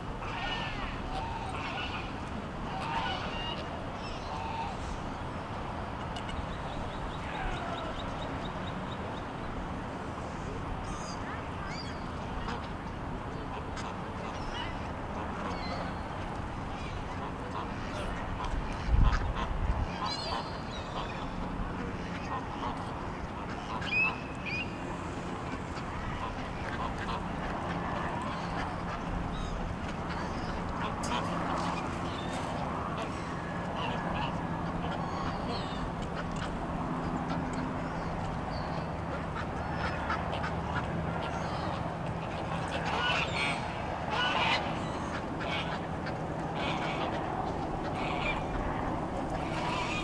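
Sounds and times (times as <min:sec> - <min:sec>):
ducks quacking softly: 0:13.4 - 0:24.2, 0:25.4 - 0:50.0.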